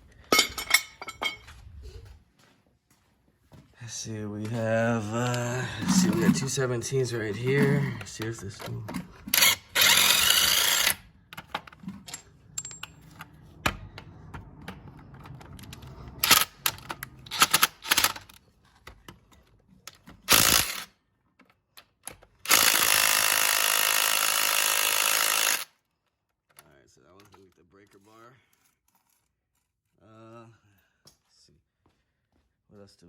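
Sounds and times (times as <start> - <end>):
metal clinks of sockets and tools: 0.3 - 1.5
impact wrench hammering: 9.2 - 11.0, 22.5 - 25.7.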